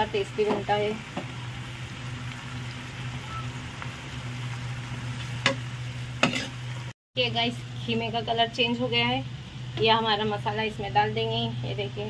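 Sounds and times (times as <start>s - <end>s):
meat sizzling in oil: 0.0s - 7.0s
steady low hum: 0.0s - 12.0s.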